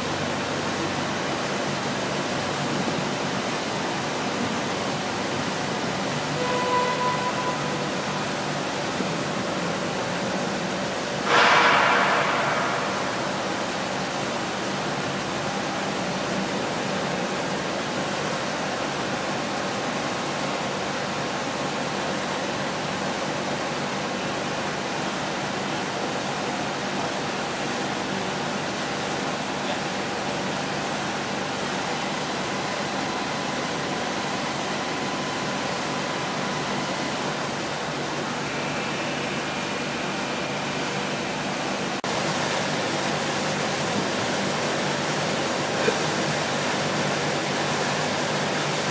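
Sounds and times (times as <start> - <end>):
boring mill machine noise: 0.0 - 48.9
faint machine whine: 4.2 - 17.5.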